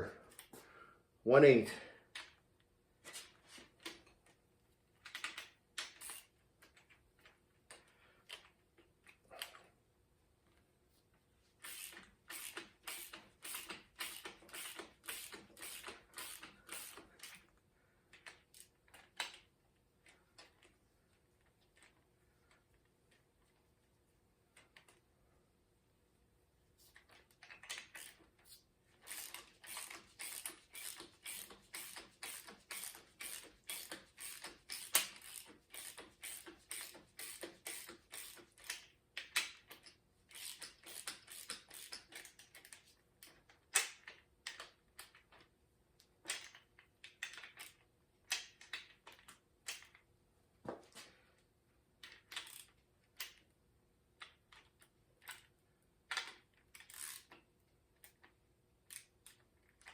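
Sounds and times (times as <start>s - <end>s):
ratchet wrench clicking: 5.0s - 6.3s, 11.6s - 17.4s, 27.5s - 45.3s, 52.0s - 53.4s, 56.1s - 57.4s, 58.9s - 59.9s.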